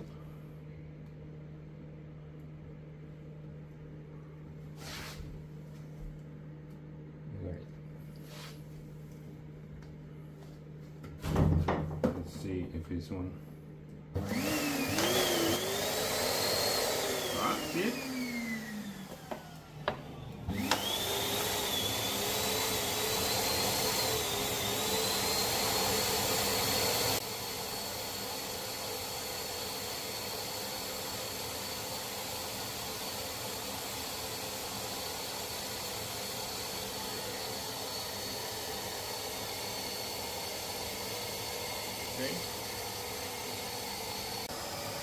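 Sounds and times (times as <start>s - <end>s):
vacuum cleaner motor whine: 14.1s - 45.0s.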